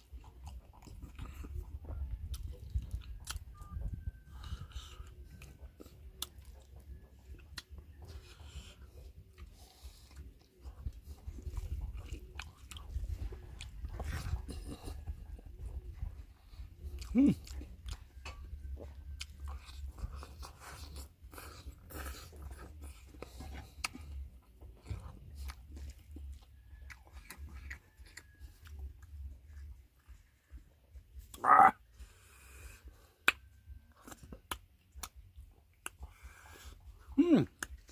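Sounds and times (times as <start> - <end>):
chewing and crunching food: 0.0 - 37.9
low hum: 0.0 - 37.9
person making voiced sound: 31.3 - 31.8, 37.2 - 37.6.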